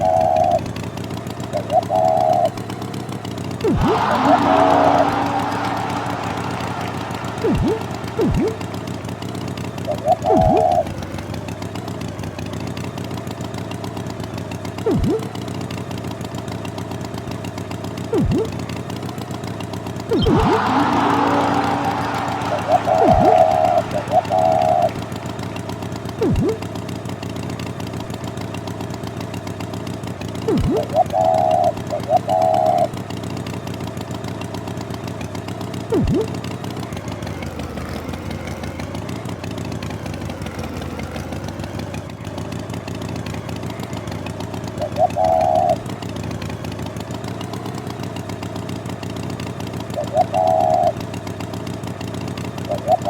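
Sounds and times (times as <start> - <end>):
tractor engine running: 0.0 - 53.0
sounds dropping sharply in pitch: 3.6 - 11.0, 14.9 - 15.4, 18.1 - 18.7, 20.1 - 26.8, 30.5 - 31.7, 35.9 - 36.4.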